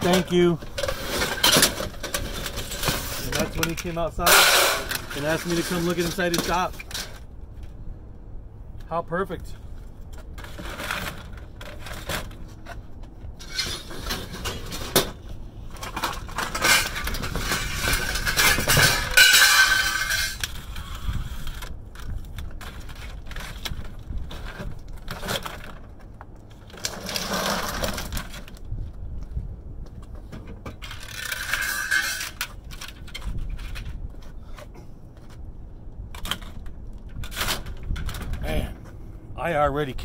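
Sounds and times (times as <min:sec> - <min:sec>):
scrap metal clinking and rattling: 0:00.0 - 0:07.7, 0:10.1 - 0:28.6, 0:30.2 - 0:35.4.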